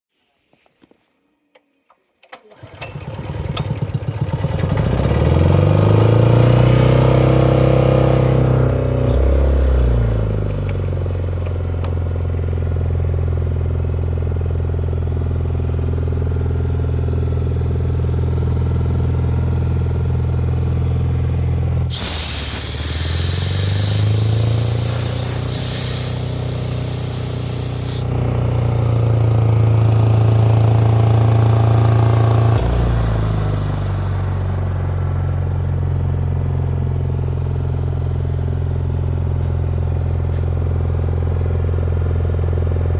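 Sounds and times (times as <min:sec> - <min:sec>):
compressed air hissing with whistle: 0:21.9 - 0:28.1
air compressor engine running: 0:21.9 - 0:28.2.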